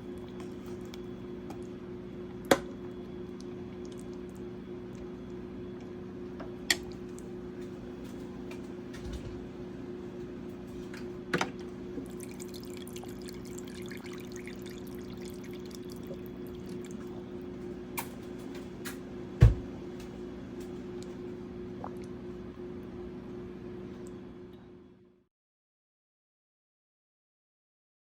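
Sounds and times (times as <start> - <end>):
steady low hum: 0.0 - 25.2
liquid pouring and dripping: 12.0 - 17.2.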